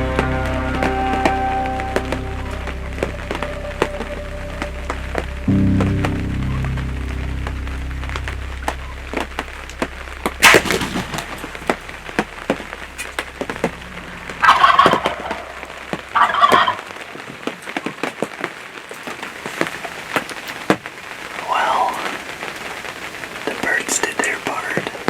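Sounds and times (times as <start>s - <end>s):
wild turkey gobbling: 10.4s - 12.3s, 12.9s - 17.0s.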